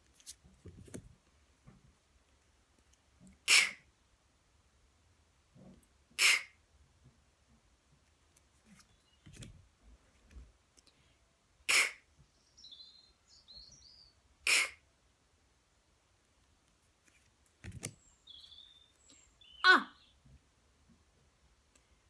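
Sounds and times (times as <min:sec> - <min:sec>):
woman making breathy k sounds: 0:06.2 - 0:06.5
faint bird chirps: 0:12.2 - 0:14.8, 0:18.0 - 0:20.2.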